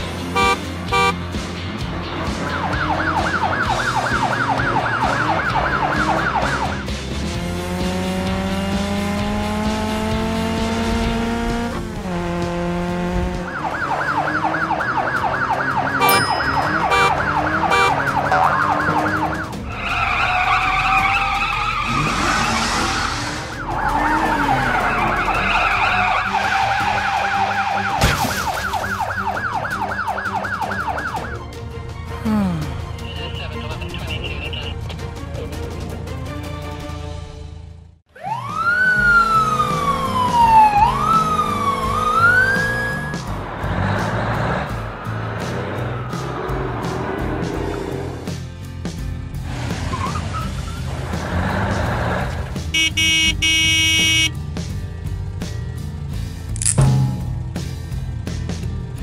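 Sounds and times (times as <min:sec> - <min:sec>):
engine revving: 0:00.0 - 0:27.9, 0:38.2 - 0:56.9.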